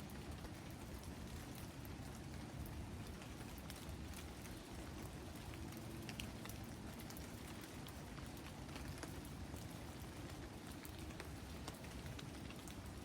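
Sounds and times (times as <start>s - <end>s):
steady hiss of rain: 0.0s - 13.0s.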